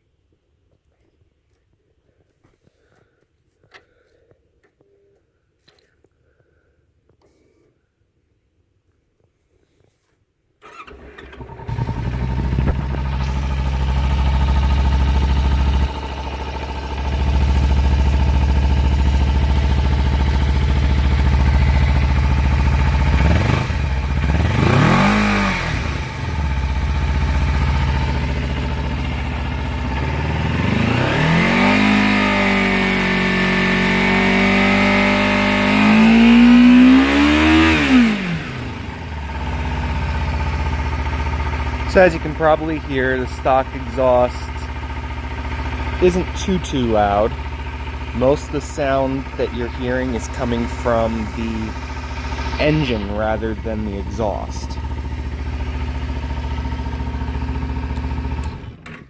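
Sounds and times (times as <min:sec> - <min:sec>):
motorcycle engine revving: 0:10.6 - 0:58.8
motorcycle engine starting and idling: 0:10.6 - 0:59.0.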